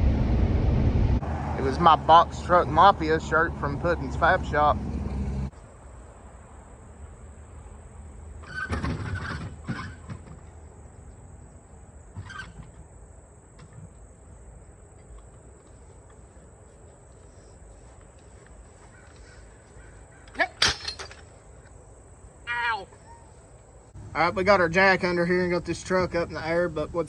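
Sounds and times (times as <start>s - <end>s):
harsh bird calls: 17.2s - 20.6s.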